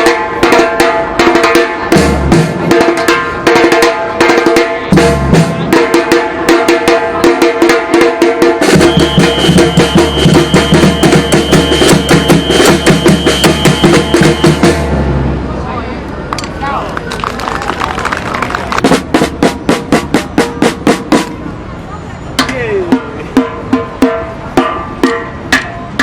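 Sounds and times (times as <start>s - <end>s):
fast drumming: 0.0s - 14.9s, 17.2s - 21.3s
heavy bass drums: 1.8s - 15.4s, 18.7s - 21.4s
steady high tone: 8.8s - 15.0s.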